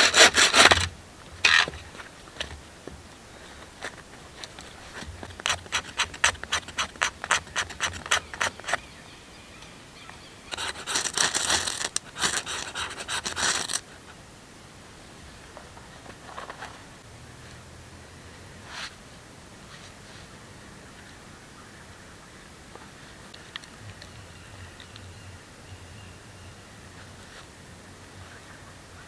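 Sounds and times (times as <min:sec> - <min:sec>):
tool scraping wood: 0:00.0 - 0:01.9, 0:03.6 - 0:08.8, 0:10.5 - 0:13.8
continuous scratching on wood: 0:00.0 - 0:02.6, 0:03.3 - 0:08.9, 0:10.5 - 0:13.9.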